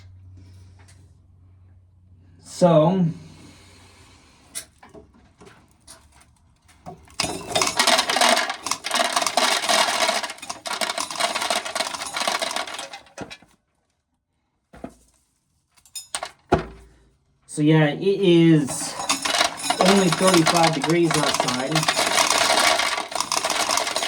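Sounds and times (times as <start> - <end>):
corn sheller clicking and rattling: 7.0 - 13.5, 16.0 - 16.5, 18.6 - 24.0.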